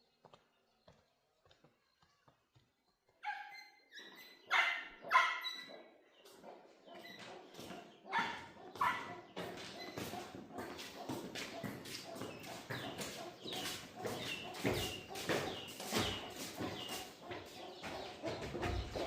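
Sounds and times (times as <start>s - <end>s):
dog barking: 3.2s - 3.6s, 4.4s - 12.4s.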